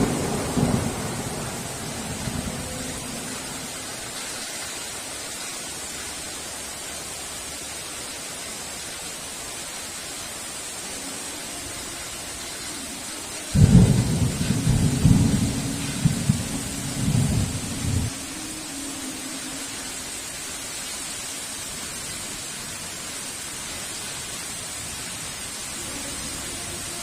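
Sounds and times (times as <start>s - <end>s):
thunder rumble: 0.0s - 4.2s, 13.5s - 18.3s
heavy rain pouring: 0.0s - 27.0s.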